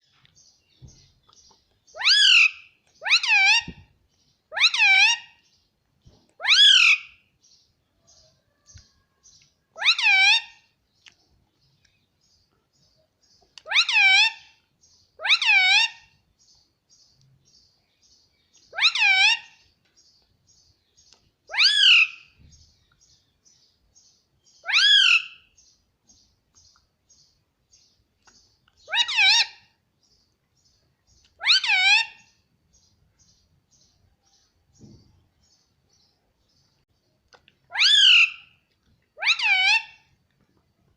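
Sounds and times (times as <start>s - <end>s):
faint bird chirps: 0.0s - 40.9s
parakeet calling loudly: 2.0s - 3.8s, 4.5s - 5.3s, 6.4s - 7.1s, 9.8s - 10.6s, 13.6s - 14.5s, 15.2s - 16.1s, 18.7s - 19.6s, 21.5s - 22.3s, 24.6s - 25.5s, 28.8s - 29.6s, 31.4s - 32.3s, 37.7s - 38.5s, 39.2s - 40.0s.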